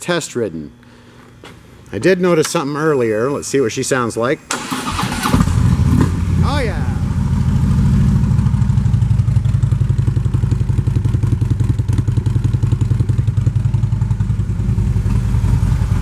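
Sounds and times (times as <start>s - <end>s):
motorcycle engine idling: 4.9s - 16.0s.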